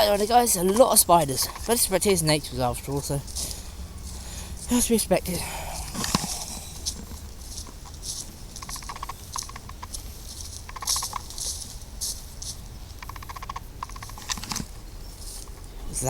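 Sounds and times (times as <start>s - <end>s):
bird rattling calls: 0.0s - 4.9s, 5.9s - 15.7s
footsteps through dry leaves: 2.8s - 13.0s, 15.1s - 15.8s.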